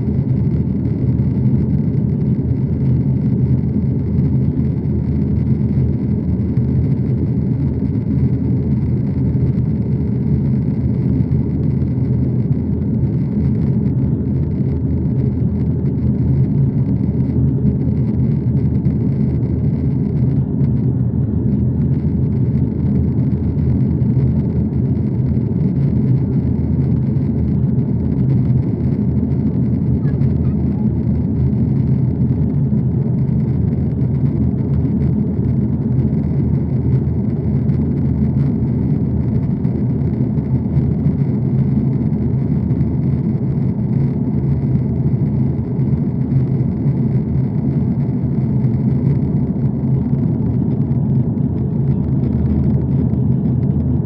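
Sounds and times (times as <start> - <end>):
aeroplane drone: 0.0 - 54.0.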